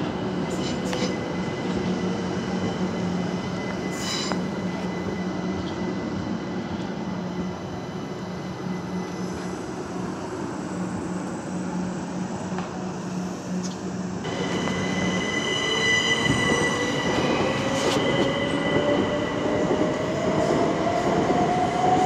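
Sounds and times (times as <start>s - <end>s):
electric train hum: 0.0s - 22.0s
high wheel squeal: 14.3s - 19.1s.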